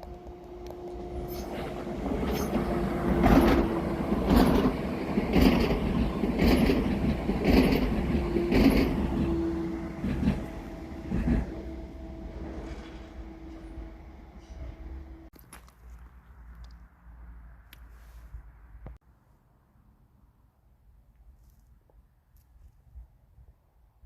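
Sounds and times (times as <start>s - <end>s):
train rumble and hum: 0.0s - 15.3s
train wheels clattering: 1.2s - 14.8s.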